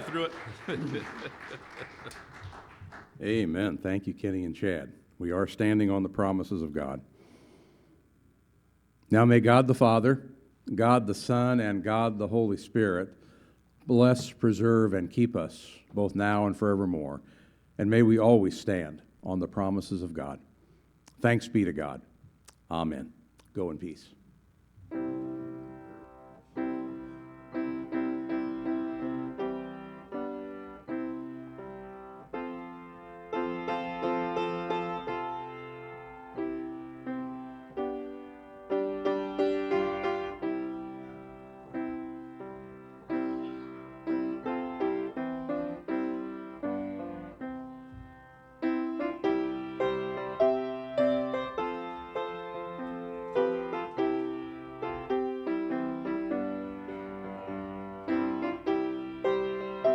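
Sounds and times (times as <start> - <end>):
piano playing slow chords: 24.9 - 59.9.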